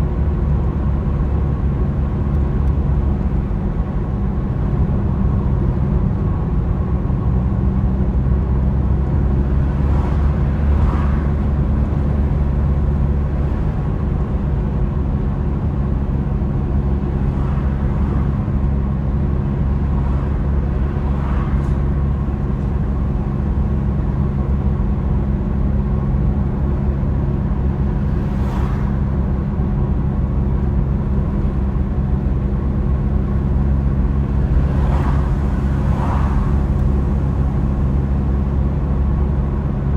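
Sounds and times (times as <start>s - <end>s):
car engine hum and road noise: 0.0s - 39.9s
passing whooshes: 34.2s - 38.0s.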